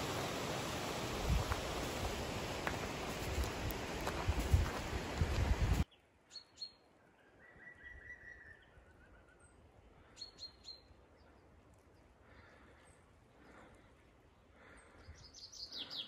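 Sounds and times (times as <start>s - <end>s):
small birds chirping: 5.8s - 16.0s.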